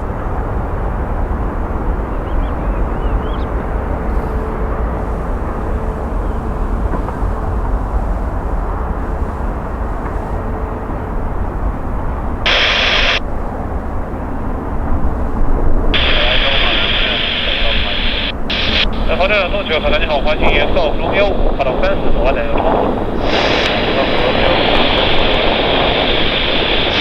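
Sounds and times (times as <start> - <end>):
jet engines rumbling: 0.0 - 27.0
radio static burst: 12.5 - 13.2, 16.0 - 27.0.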